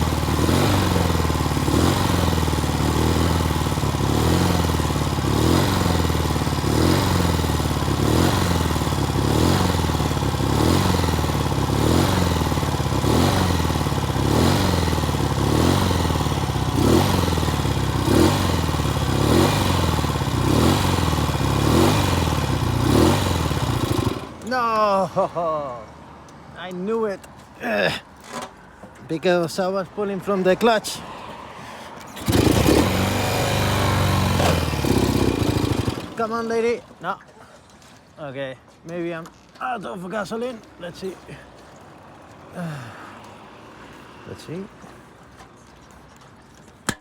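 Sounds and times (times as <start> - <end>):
motorcycle engine running: 0.0 - 24.5, 32.2 - 36.5.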